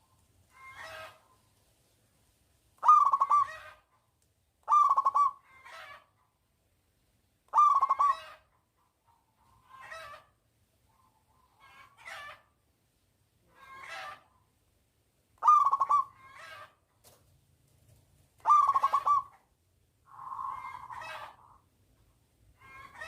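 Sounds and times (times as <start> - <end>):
dove cooing: 2.8 - 3.8, 4.6 - 5.5, 7.5 - 8.4, 15.4 - 16.6, 18.4 - 19.4, 20.1 - 21.6.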